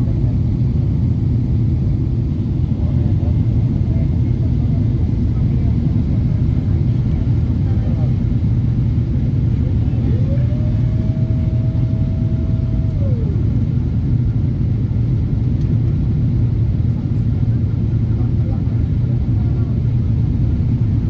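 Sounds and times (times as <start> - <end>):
rising and falling tone: 9.9 - 13.7.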